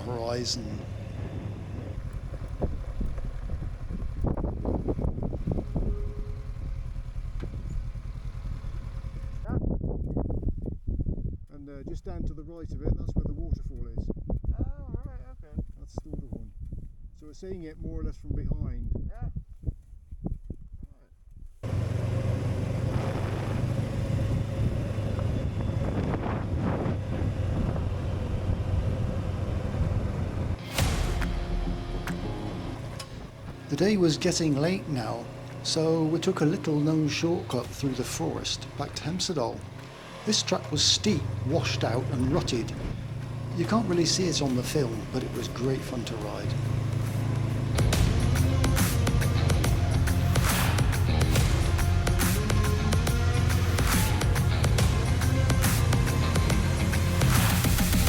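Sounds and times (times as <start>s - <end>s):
wind on microphone: 0.0s - 6.9s, 9.5s - 21.6s, 22.8s - 30.6s
motorcycle engine running: 0.0s - 17.0s, 21.6s - 58.0s.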